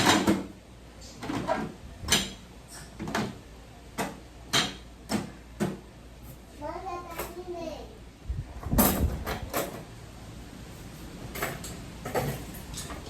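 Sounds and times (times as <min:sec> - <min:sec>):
dishes and cutlery clinking: 0:11.3 - 0:13.0.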